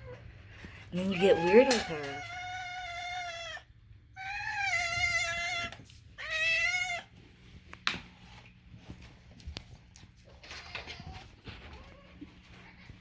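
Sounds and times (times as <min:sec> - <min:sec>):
cat meowing: 0:01.2 - 0:07.1.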